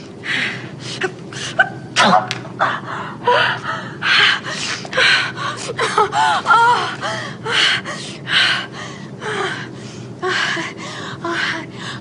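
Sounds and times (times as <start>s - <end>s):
woman gasping and moaning: 0.2s - 12.0s
woman whimpering cries: 0.8s - 7.9s.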